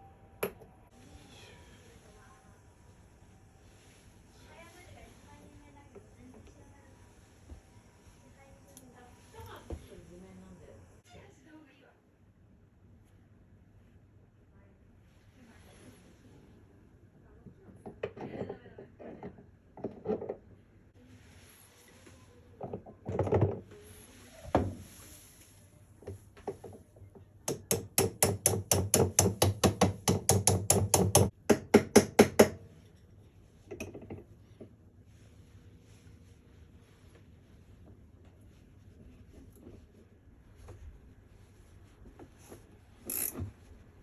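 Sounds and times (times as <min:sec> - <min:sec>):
soft rustle: 0:21.0 - 0:22.6, 0:23.7 - 0:27.0, 0:32.8 - 0:44.0.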